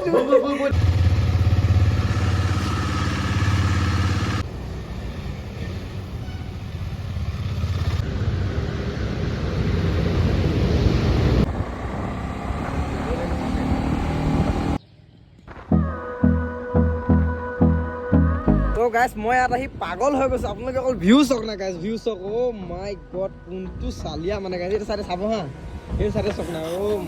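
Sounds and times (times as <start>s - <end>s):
motorcycle engine running: 0.7s - 4.5s.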